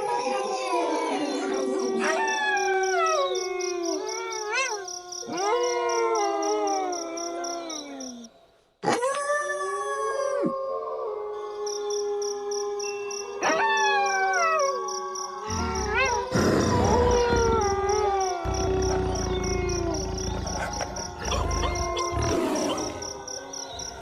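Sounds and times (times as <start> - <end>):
wolves howling: 13.4 - 24.0.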